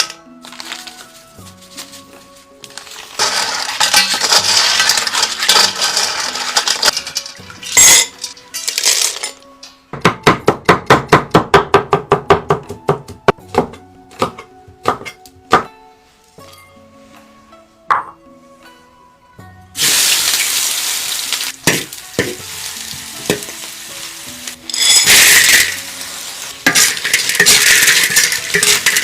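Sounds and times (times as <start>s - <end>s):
quiet background music: 0.0s - 29.0s
utensil clatter: 3.2s - 9.4s, 24.7s - 25.8s, 26.6s - 29.0s.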